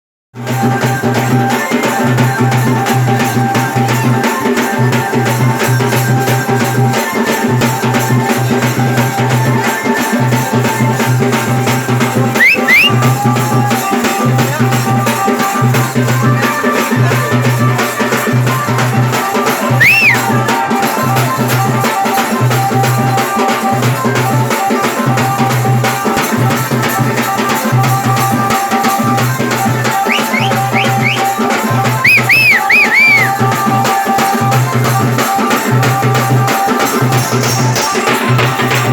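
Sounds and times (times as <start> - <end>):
drums and rattles rhythm: 0.4 - 38.9
held tones: 12.4 - 13.0, 19.8 - 20.3, 29.9 - 33.4.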